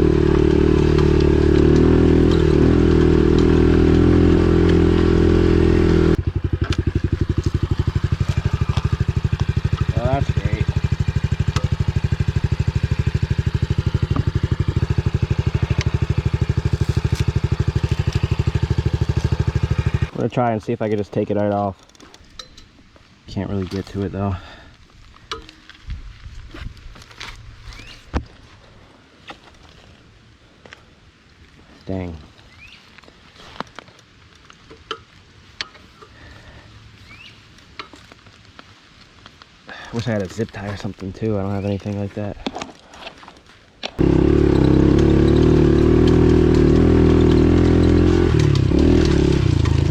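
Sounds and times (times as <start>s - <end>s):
motorbike engine idling: 0.0s - 20.2s, 44.0s - 49.9s
small clicks and light scrapes: 21.0s - 22.8s, 32.8s - 36.2s, 37.6s - 44.0s
rising bird chirp: 27.7s - 28.1s, 37.0s - 37.5s.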